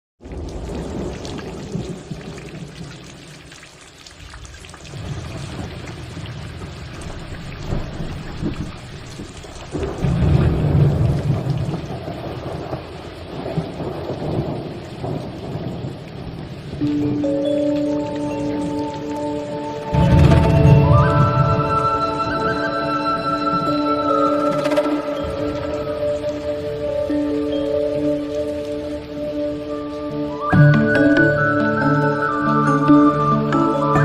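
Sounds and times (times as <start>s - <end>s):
waterfall rushing: 16.8s - 34.0s.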